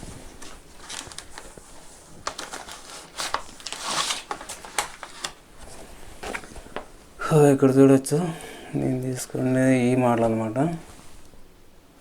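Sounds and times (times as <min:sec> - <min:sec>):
paper rustling and crinkling: 0:00.0 - 0:07.0
pages turning: 0:00.2 - 0:06.9.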